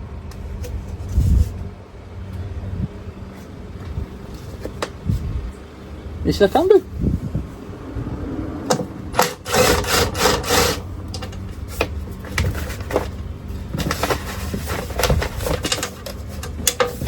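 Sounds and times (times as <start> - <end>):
steady low hum: 0.0 - 17.0
scraping rub: 0.6 - 1.7, 9.2 - 17.0.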